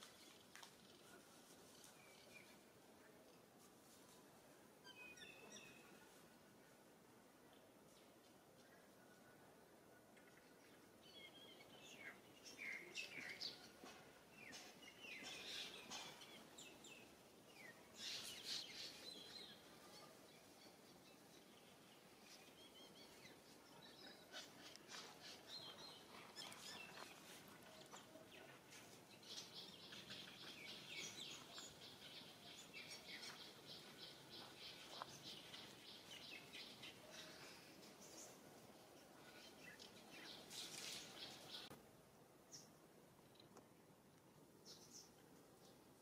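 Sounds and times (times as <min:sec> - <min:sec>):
background hiss: 0:00.0 - 0:46.0
birds chirping: 0:10.1 - 0:41.8.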